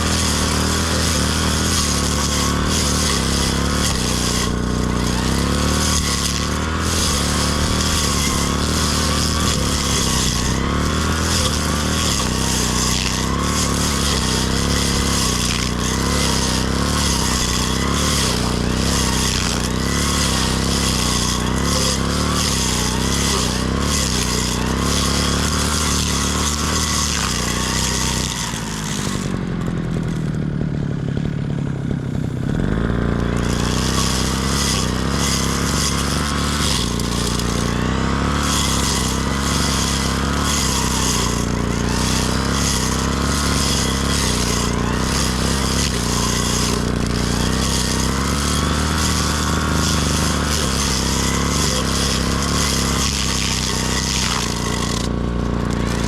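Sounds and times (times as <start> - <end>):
brush cutter engine running: 0.0 - 56.0.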